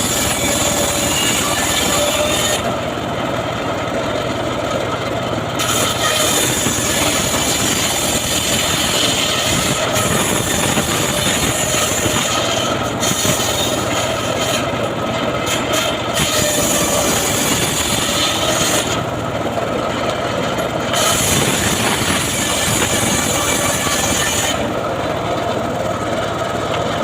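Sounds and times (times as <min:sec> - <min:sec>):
sawmill saw cutting wood: 0:00.0 - 0:27.0.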